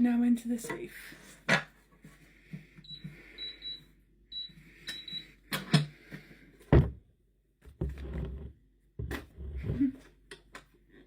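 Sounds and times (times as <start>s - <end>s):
keypad safe beeps: 2.9s - 5.3s.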